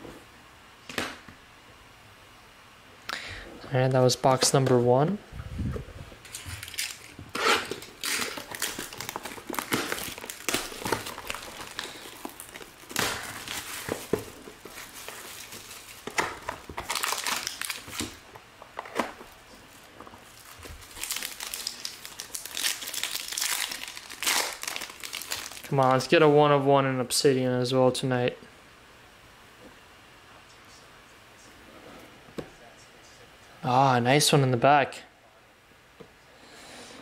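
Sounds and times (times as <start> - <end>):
plastic wrapping crinkling and tearing: 6.2 - 26.1.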